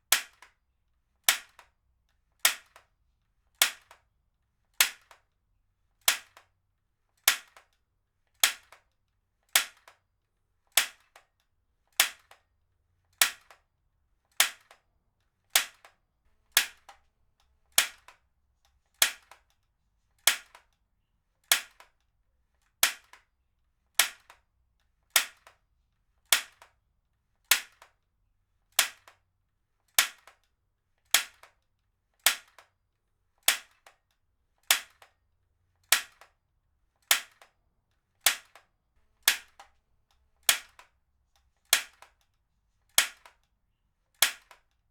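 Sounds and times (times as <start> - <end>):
heavy-duty stapler snapping: 38.2 - 38.6, 40.4 - 40.9, 43.0 - 43.4.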